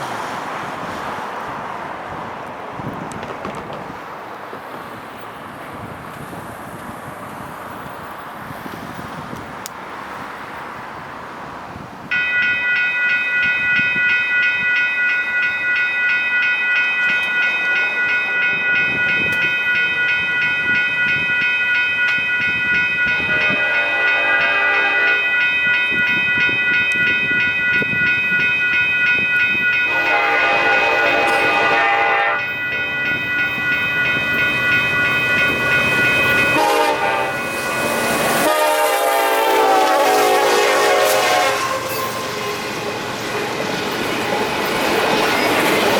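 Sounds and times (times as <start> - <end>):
train rumble: 0.0 - 45.9
crossing bell ringing: 12.1 - 45.9
train horn blasts: 23.0 - 25.5, 29.8 - 33.4, 36.3 - 42.7.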